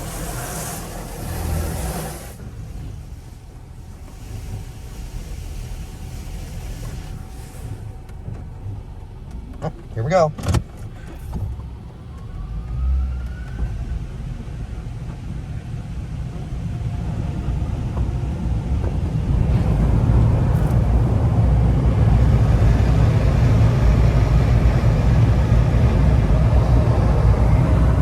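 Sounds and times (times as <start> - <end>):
car wash dryer blowers: 0.0 - 28.0
rising whine: 16.6 - 28.0.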